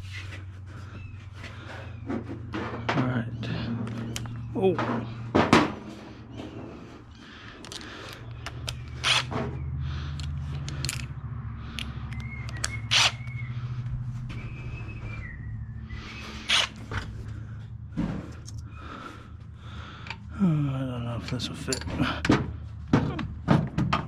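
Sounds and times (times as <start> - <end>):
steady low hum: 0.0 - 23.4
hand tools clinking on metal: 21.2 - 22.3.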